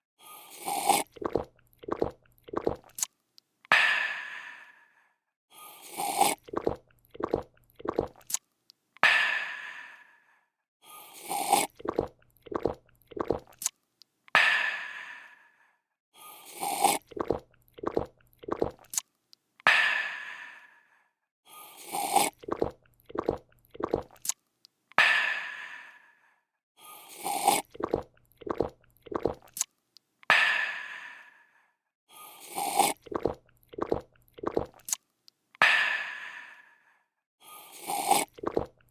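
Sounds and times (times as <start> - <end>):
person slurping and gulping: 0.3 - 3.1, 5.6 - 8.4, 11.0 - 13.8, 16.3 - 19.0, 21.6 - 24.4, 26.9 - 29.7, 32.2 - 35.0, 37.5 - 38.9.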